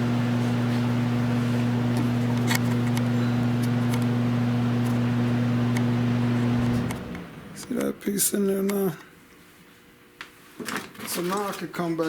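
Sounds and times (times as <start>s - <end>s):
power tool humming: 0.0s - 7.9s.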